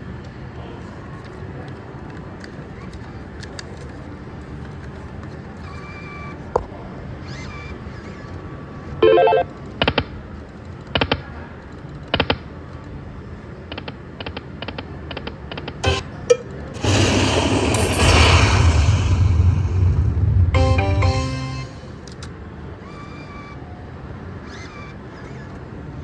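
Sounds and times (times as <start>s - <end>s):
slot machine jingle: 9.0s - 9.4s, 20.6s - 21.9s
slot machine beeps and tones: 9.0s - 9.5s, 15.8s - 16.4s, 20.6s - 21.9s.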